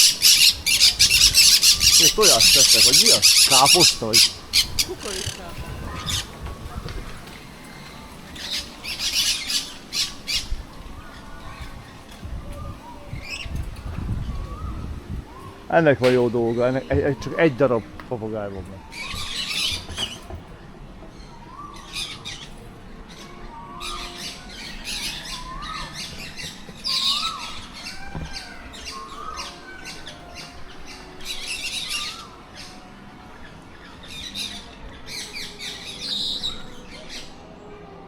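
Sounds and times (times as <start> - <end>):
parrots squawking: 0.0 - 6.4, 23.8 - 32.9
birds chirping: 0.0 - 38.0.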